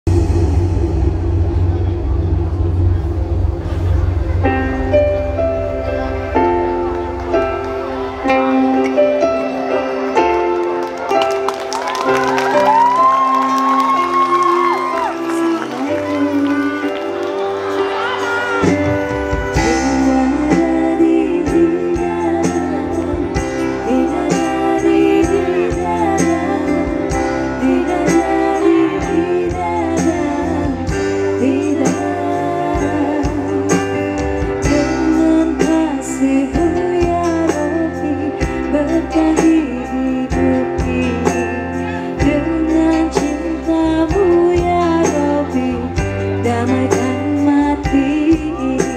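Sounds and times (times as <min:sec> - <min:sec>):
live band music: 0:00.0 - 0:48.9
woman singing: 0:13.0 - 0:48.9.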